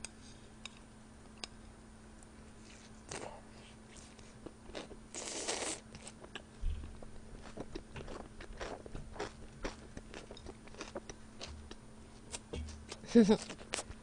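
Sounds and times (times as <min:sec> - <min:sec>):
crunchy chewing: 0:03.9 - 0:14.0
dull thump: 0:12.5 - 0:12.8.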